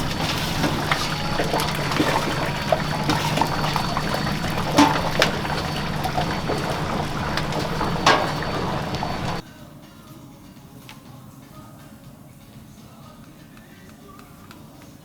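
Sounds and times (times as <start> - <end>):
low hum: 0.0 - 9.4
utensils clinking and knocking: 0.0 - 9.4.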